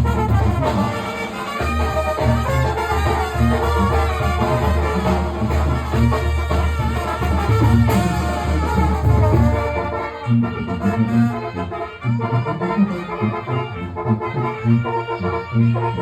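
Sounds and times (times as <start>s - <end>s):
brass band playing: 0.0s - 16.0s.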